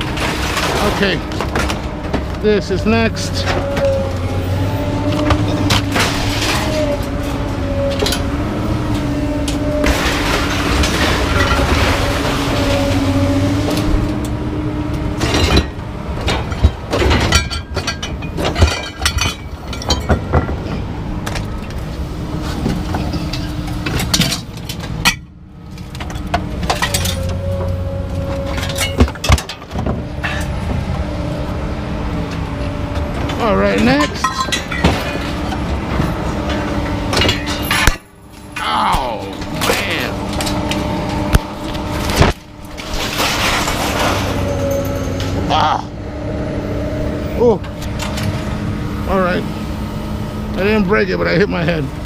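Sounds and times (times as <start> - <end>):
scrap metal clanking: 5.1 - 8.3, 33.2 - 38.6, 39.3 - 45.5.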